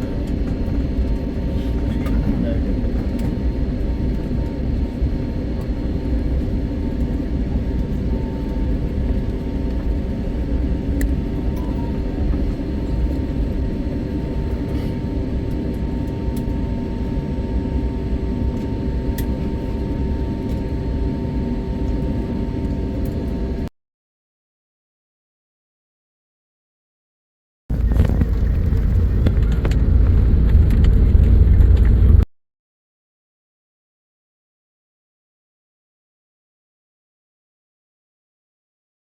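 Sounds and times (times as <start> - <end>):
low engine drone: 0.0 - 23.7, 27.7 - 32.3.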